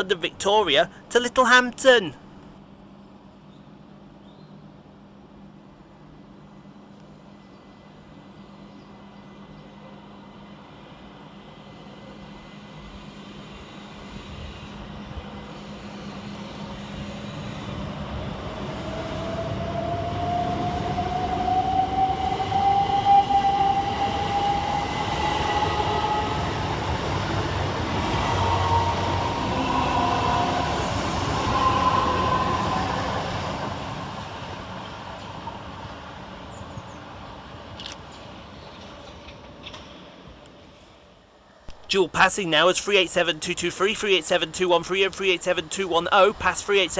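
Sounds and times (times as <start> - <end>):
wheels rumbling on rail: 6.2 - 41.0.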